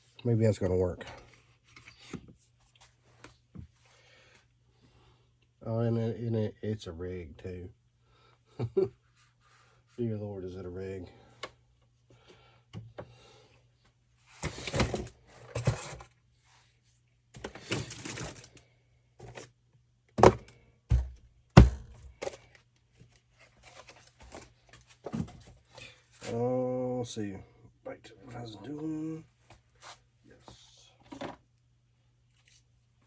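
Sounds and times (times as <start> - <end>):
sharp knocks on workbench: 20.2 - 22.0
rustling and shuffling: 22.0 - 26.4.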